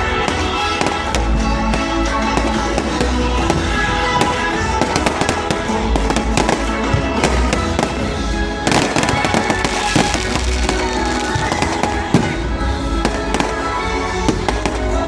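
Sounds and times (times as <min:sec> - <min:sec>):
music with sustained tones: 0:00.0 - 0:15.0.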